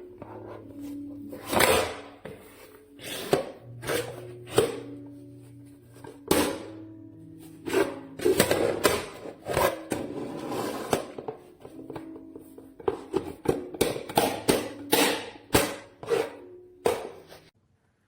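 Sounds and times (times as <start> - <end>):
soft background music: 0.0 - 17.6
plastic containers clicking and knocking: 11.0 - 15.2.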